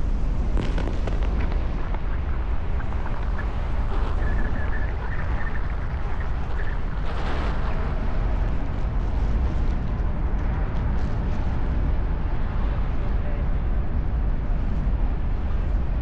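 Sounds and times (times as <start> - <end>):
distant fireworks rumble: 0.0 - 11.8.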